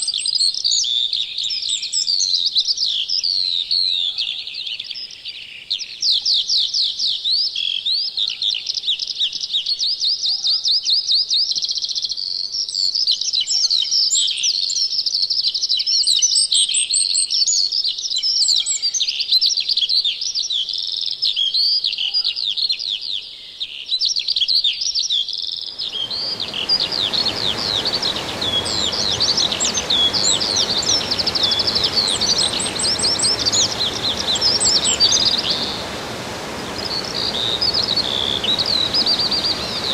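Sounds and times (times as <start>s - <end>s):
songbirds singing: 25.6s - 39.9s
steady background hiss: 25.7s - 39.9s.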